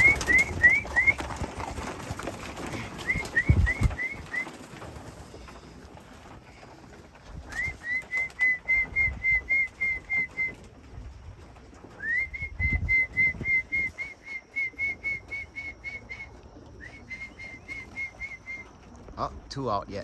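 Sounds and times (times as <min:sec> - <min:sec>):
person whistling short notes: 0:07.5 - 0:10.6.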